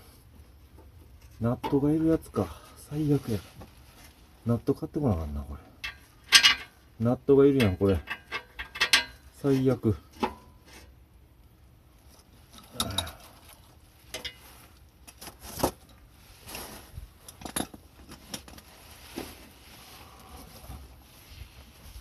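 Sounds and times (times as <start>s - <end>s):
metal parts and tools clinking: 5.8s - 6.8s, 7.6s - 9.4s, 17.2s - 18.7s.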